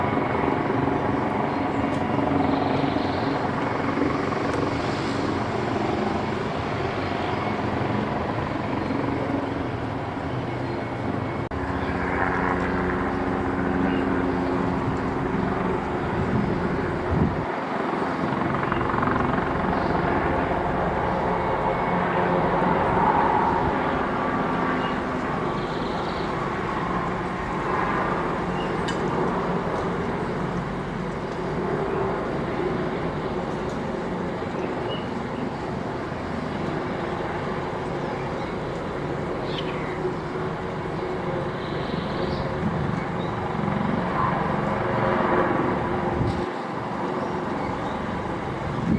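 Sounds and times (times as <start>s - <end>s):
helicopter rotor noise: 0.0s - 48.9s
helicopter turbine whine: 0.0s - 48.9s.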